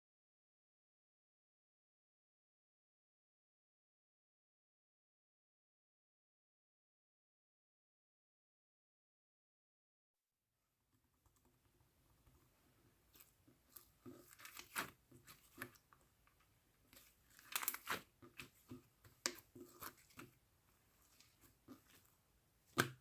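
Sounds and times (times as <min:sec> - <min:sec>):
slime squished by hand: 0:13.1 - 0:15.9, 0:16.9 - 0:20.4.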